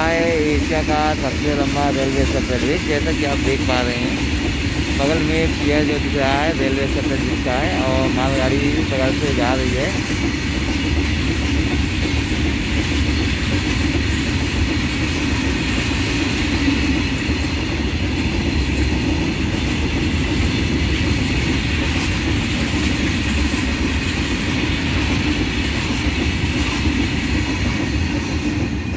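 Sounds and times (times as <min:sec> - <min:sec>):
freight train wheels on rails: 0:00.0 - 0:28.9.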